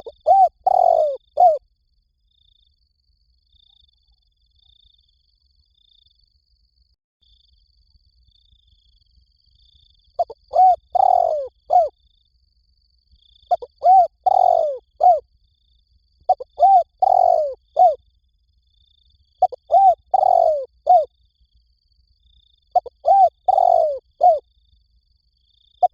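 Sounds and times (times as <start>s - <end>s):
dove cooing: 0.0s - 1.6s, 10.2s - 11.9s, 13.5s - 15.2s, 16.3s - 18.0s, 19.4s - 21.1s, 22.7s - 24.4s.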